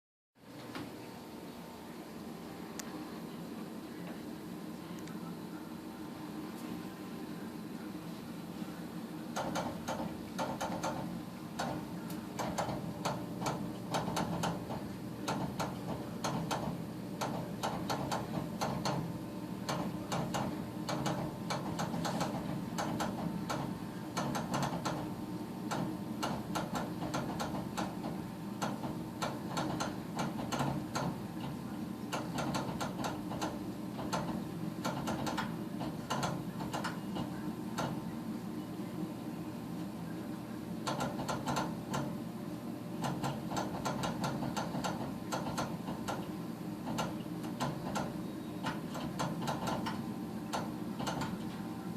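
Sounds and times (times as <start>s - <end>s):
gas furnace humming: 0.4s - 51.9s
rapid irregular clicking: 9.3s - 38.1s, 40.8s - 42.2s, 43.0s - 51.6s.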